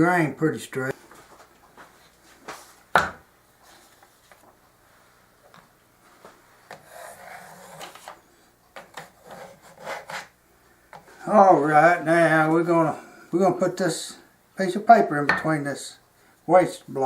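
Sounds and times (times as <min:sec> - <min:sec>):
wood rubbing and scraping: 0:06.7 - 0:08.2, 0:08.8 - 0:10.3.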